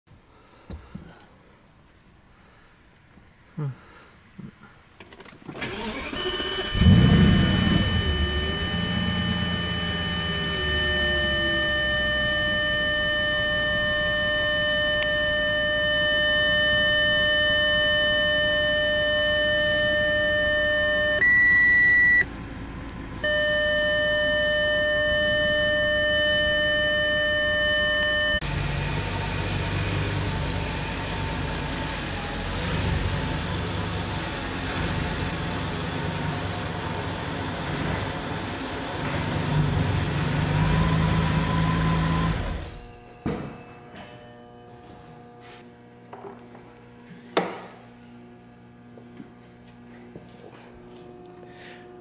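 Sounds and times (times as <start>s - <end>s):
car engine starting and idling: 5.1s - 43.0s
steady high-pitched tone: 6.1s - 22.3s, 23.2s - 28.4s.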